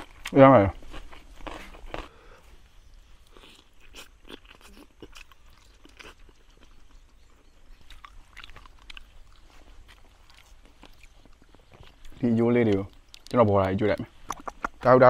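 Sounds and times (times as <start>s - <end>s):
person chewing: 0.0s - 14.9s
small crunches and clicks: 7.6s - 15.0s
wet smacks: 10.9s - 14.9s.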